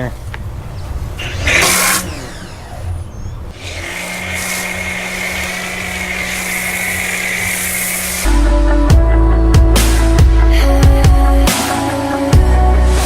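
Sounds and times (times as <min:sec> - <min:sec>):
pressure washer motor whine: 0:01.2 - 0:08.4
hiss of water spray: 0:03.7 - 0:08.3
music: 0:04.2 - 0:13.0.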